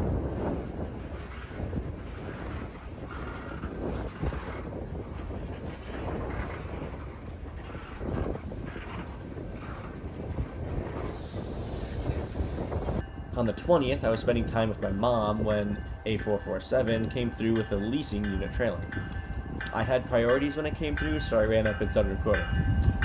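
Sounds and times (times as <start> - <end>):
wind buffeting microphone: 0.0 - 23.0
freight train rumbling past: 10.0 - 23.0.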